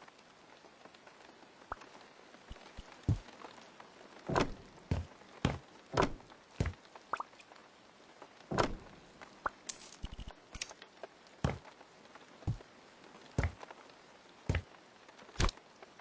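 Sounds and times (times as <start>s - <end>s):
objects knocking and thudding: 2.5s - 3.3s, 4.3s - 6.8s, 8.5s - 9.0s, 11.4s - 11.6s, 13.4s - 13.6s
light clinks of objects: 8.5s - 10.8s.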